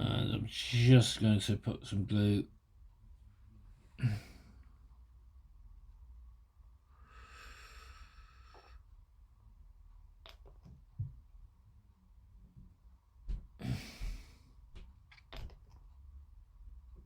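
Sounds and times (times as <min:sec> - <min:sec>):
low steady hum: 0:00.0 - 0:17.0
faint breathy hiss: 0:06.9 - 0:08.9
light clicks and small knocks: 0:14.7 - 0:16.0.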